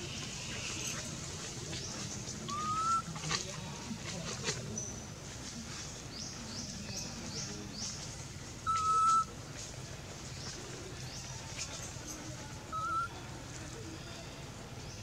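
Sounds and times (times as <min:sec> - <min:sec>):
birds chirping: 0:00.0 - 0:03.6, 0:06.0 - 0:09.5.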